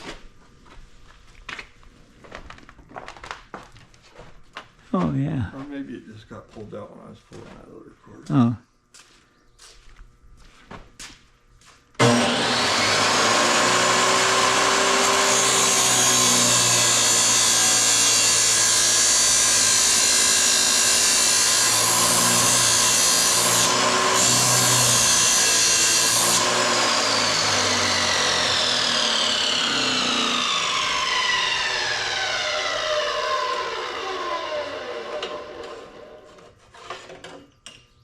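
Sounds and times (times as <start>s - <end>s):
power tool grinding with whine: 12.0s - 36.4s.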